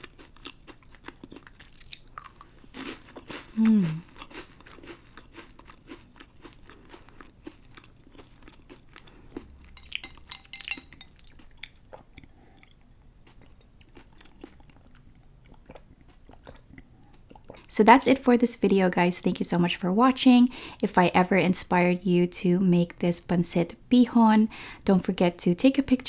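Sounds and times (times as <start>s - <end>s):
person chewing crunchy cookies: 0.0s - 17.7s.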